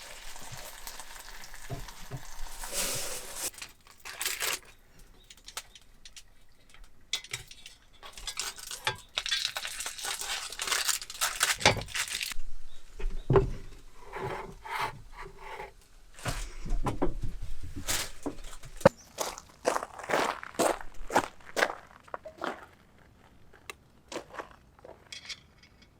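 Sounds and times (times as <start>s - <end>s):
rubbing and scraping: 2.2s - 3.6s, 13.4s - 18.9s
light clinks and knocks: 4.0s - 12.3s.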